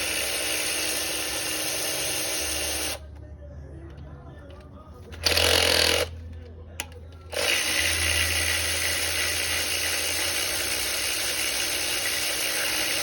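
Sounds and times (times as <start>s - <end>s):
power tool whirring: 0.0s - 3.1s, 5.1s - 6.2s, 6.8s - 13.0s
constant low hum: 3.0s - 8.7s.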